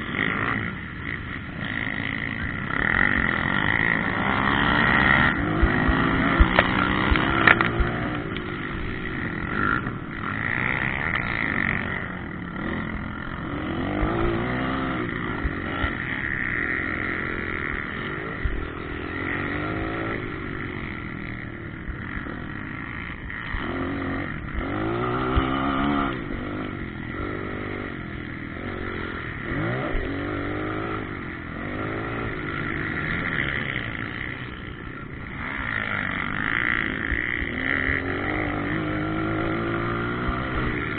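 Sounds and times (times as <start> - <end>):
motocross engines revving: 0.0 - 40.9.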